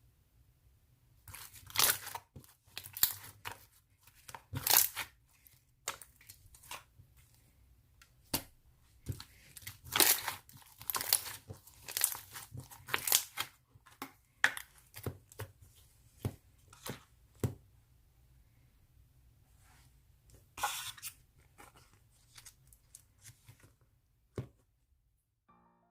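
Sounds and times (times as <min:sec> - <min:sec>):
slime crackling and popping: 0:02.8 - 0:03.5, 0:04.2 - 0:05.2, 0:09.6 - 0:13.5.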